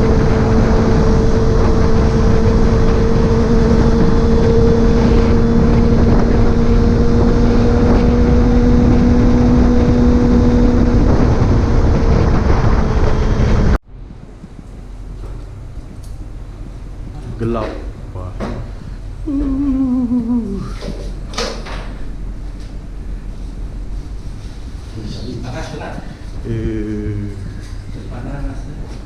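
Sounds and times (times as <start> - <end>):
motorcycle engine drone: 0.0 - 28.9
wind rush on microphone: 0.0 - 29.0.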